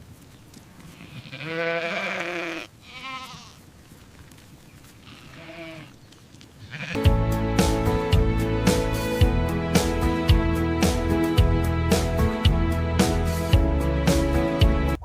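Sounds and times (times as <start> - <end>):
livestock bleating: 0.9 - 3.7, 5.0 - 6.0, 6.6 - 7.1.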